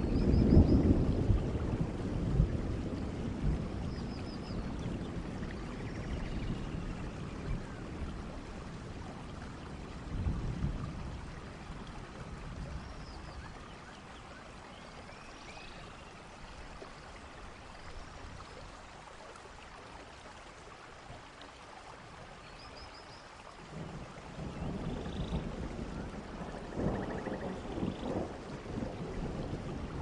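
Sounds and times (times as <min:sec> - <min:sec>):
low thunder rumble: 0:00.0 - 0:13.6, 0:23.7 - 0:30.0
steady rain falling: 0:00.0 - 0:30.0.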